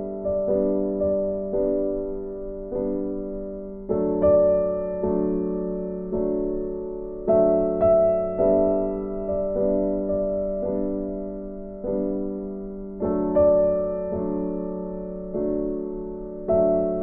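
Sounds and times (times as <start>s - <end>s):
slow gentle piano music: 0.0s - 17.0s.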